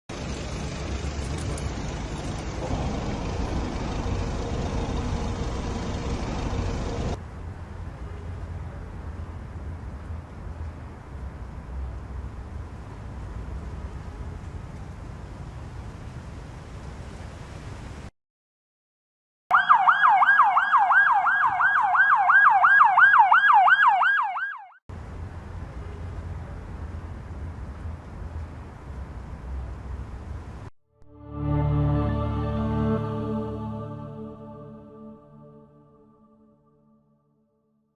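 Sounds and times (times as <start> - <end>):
road vehicle noise: 0.1 - 18.1, 20.0 - 35.6
electronic siren yelping: 19.5 - 24.8.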